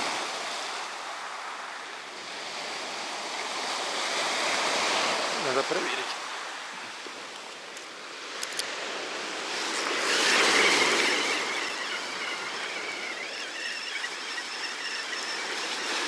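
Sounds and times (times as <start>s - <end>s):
sea surf washing onto beach: 0.0s - 16.0s
faint thin whine: 9.7s - 16.0s.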